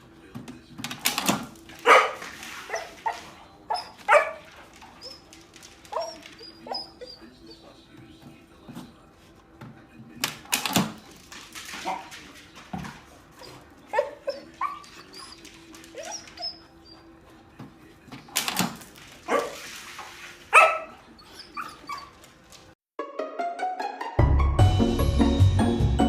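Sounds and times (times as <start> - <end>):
dog barking and yipping: 1.7 - 7.3, 13.4 - 17.1, 19.2 - 19.7, 20.5 - 22.3.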